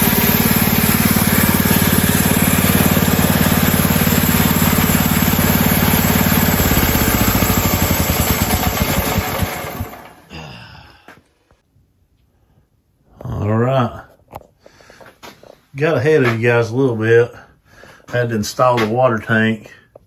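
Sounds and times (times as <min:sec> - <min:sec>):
small gas engine running: 0:00.0 - 0:10.5.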